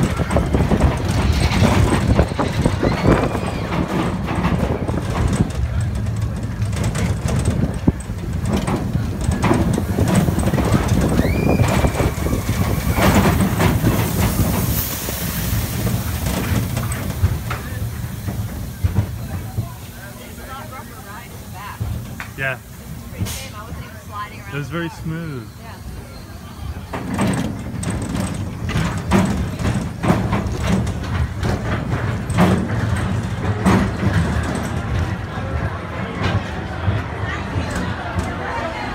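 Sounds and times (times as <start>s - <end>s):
roller coaster cars rumbling: 0.0s - 38.9s
high squeal: 11.1s - 13.4s.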